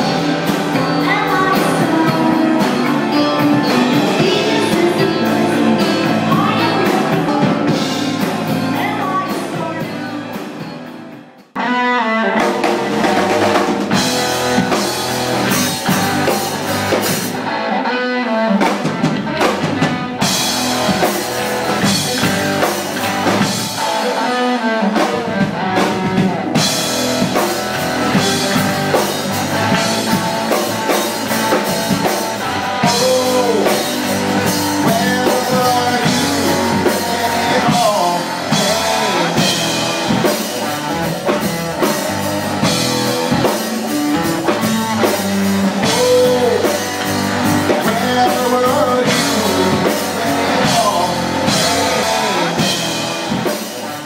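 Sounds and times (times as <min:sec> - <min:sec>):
person singing: 0:00.0 - 0:10.7, 0:28.1 - 0:53.0
rock band playing: 0:00.0 - 0:54.0.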